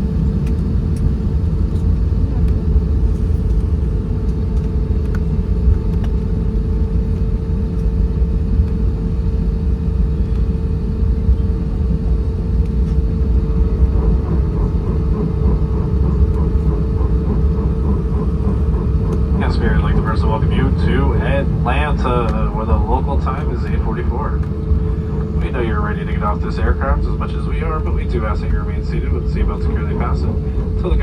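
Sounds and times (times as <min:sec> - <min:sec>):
steady hum: 0:00.0 - 0:31.0
engines and wheels rumbling: 0:10.1 - 0:31.0
faint rapid pulsing: 0:11.1 - 0:31.0.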